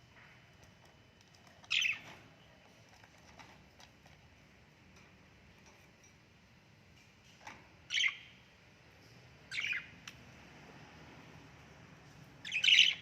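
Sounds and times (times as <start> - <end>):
parrot calling: 12.4 - 13.0.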